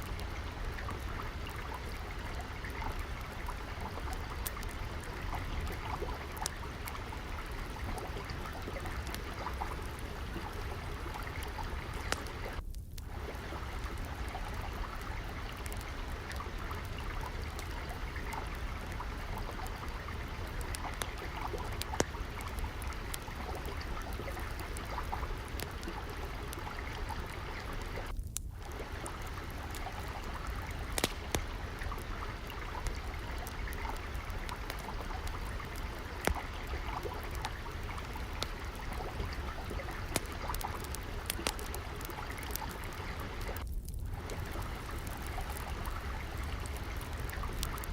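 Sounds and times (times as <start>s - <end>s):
trickling water: 0.0s - 47.9s
wood fire crackling: 0.0s - 47.9s.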